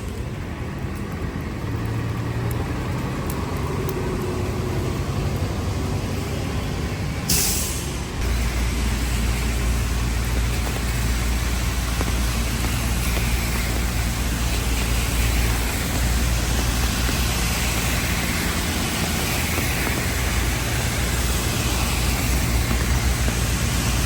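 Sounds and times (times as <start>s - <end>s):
low engine rumble: 0.0s - 24.0s
street traffic: 0.0s - 24.0s
air brakes hissing: 7.1s - 24.0s.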